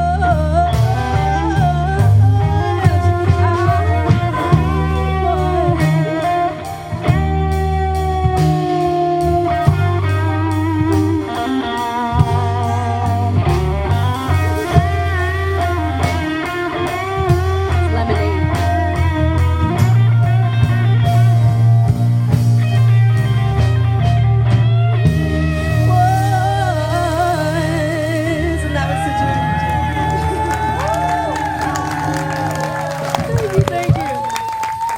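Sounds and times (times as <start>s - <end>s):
deep steady bass line: 0.0s - 34.4s
guitar melody with bending notes: 0.0s - 34.6s
drum beat: 29.7s - 34.9s.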